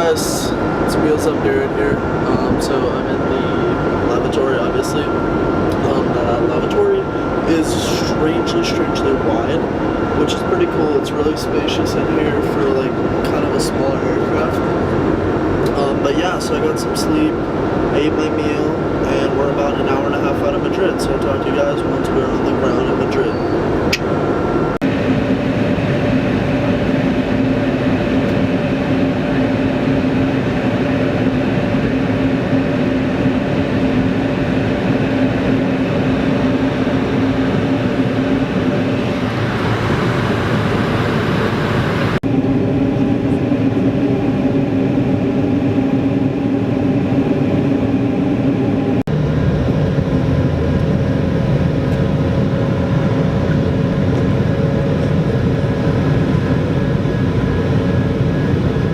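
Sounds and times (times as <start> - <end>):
cabin airflow: 0.0 - 25.4, 33.6 - 42.3
aircraft engine drone: 0.0 - 58.9.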